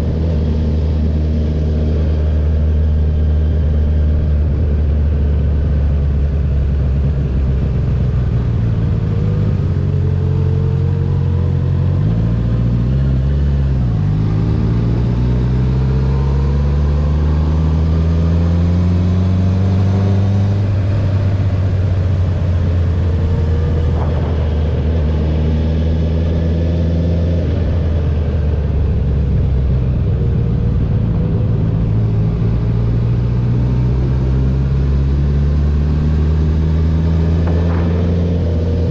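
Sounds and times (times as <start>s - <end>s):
motorcycle engine running: 36.0s - 38.9s.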